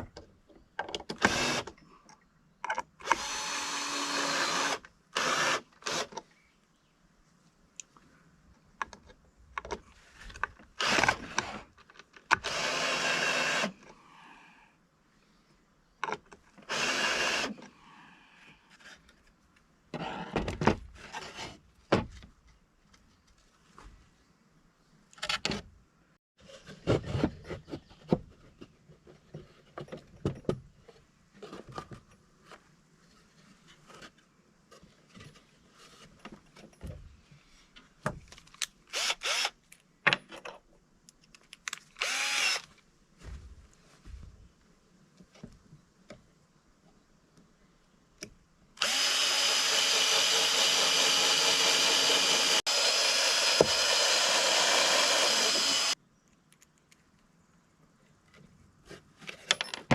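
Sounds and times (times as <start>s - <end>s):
power drill running: 1.2s - 1.7s, 3.0s - 6.1s, 12.4s - 13.7s, 16.7s - 17.5s, 38.9s - 39.5s, 42.0s - 42.7s, 48.8s - 56.0s.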